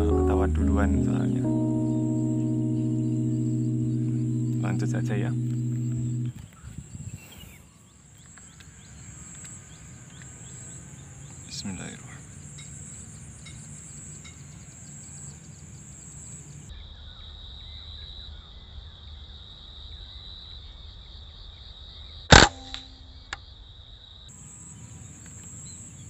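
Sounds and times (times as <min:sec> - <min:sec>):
insects trilling: 0:08.2 - 0:16.7, 0:24.3 - 0:26.0
air rifle shot: 0:22.3 - 0:22.8.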